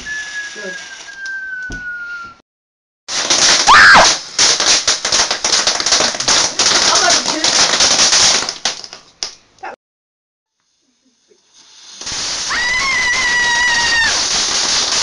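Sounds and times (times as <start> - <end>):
fireworks fizzing: 0.0 - 2.2, 3.1 - 9.4, 10.6 - 15.0
firework whistle: 0.0 - 2.4, 3.4 - 4.2, 11.4 - 15.0
firework pops: 3.1 - 9.4, 11.5 - 15.0.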